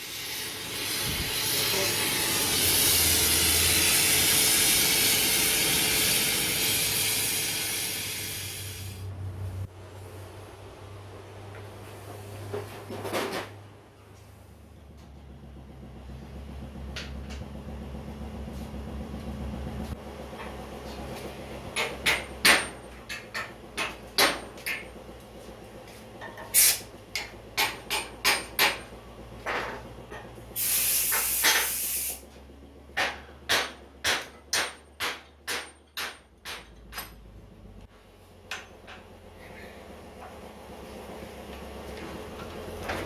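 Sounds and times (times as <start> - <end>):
hiss: 0.0 - 9.1, 26.5 - 26.9, 30.6 - 32.2.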